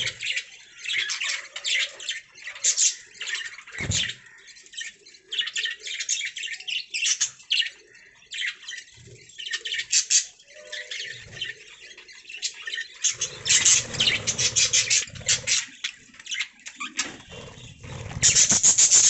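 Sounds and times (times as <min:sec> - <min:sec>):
harsh bird squawks: 0:00.0 - 0:01.1, 0:13.0 - 0:15.8, 0:17.2 - 0:19.0
budgerigars chirping and warbling: 0:00.0 - 0:19.0.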